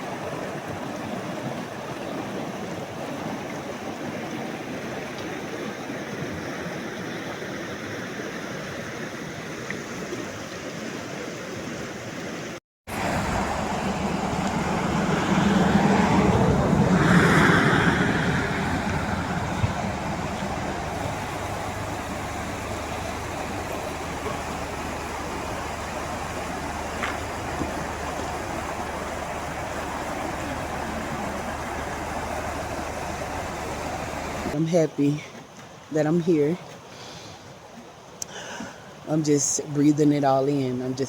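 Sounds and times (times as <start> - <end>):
mountain river rushing: 0.0 - 39.2.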